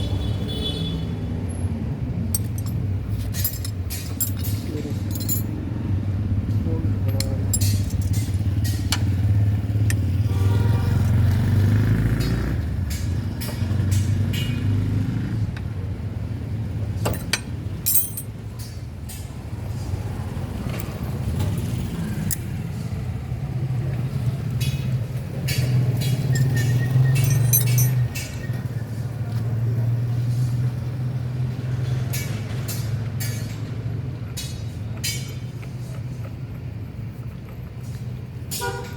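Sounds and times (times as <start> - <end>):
engine humming: 1.3 - 38.6
sharp metallic clinks: 2.3 - 5.6, 7.1 - 8.8, 17.0 - 18.4, 25.5 - 28.6.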